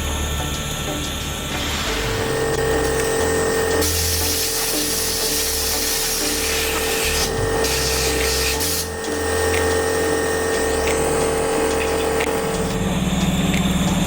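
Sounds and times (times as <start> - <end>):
machine hum: 0.0 - 14.0
loud hissing spray: 3.8 - 8.9.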